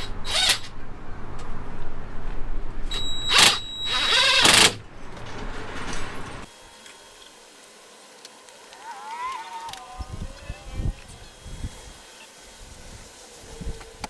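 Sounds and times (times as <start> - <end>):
power tool driving fasteners: 0.0 - 0.7, 2.9 - 4.8.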